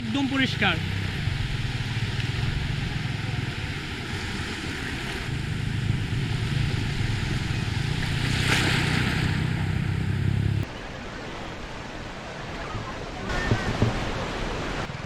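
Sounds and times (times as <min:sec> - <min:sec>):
sea surf washing onto beach: 0:00.0 - 0:15.0
wind rumble on microphone: 0:00.8 - 0:10.6.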